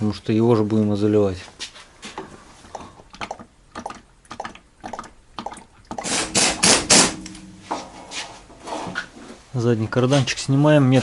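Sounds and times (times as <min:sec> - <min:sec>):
pneumatic wrench bursts: 0:06.0 - 0:07.2.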